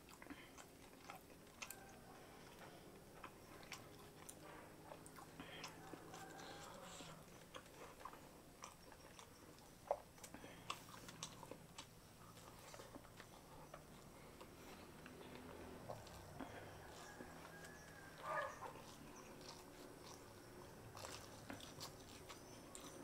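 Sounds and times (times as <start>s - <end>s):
person chewing: 0.0s - 23.0s.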